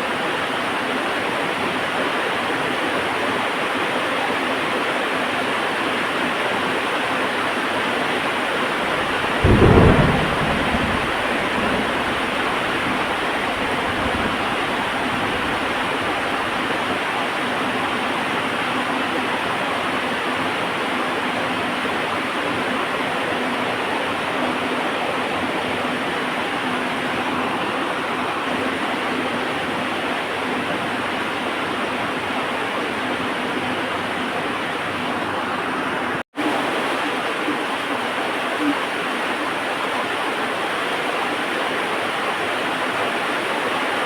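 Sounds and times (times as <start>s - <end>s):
heavy rain falling: 6.0s - 44.0s
thunder clap rumbling: 7.9s - 18.1s.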